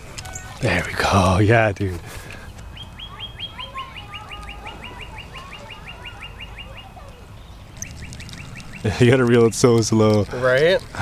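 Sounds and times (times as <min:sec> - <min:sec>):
bird calling high notes: 0:02.6 - 0:09.7.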